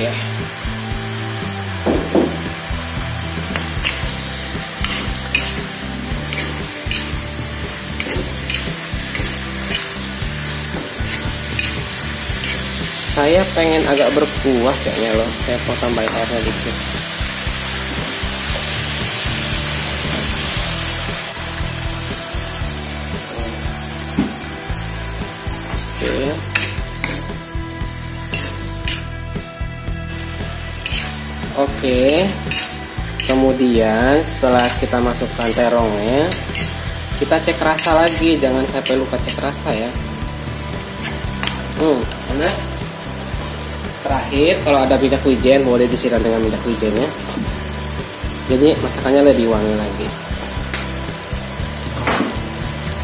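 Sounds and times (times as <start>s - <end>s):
eggplant sizzling in a wok: 0.0s - 53.0s
metal spatula scraping a pan: 3.4s - 16.6s, 25.6s - 29.3s, 30.1s - 39.9s, 40.9s - 41.8s.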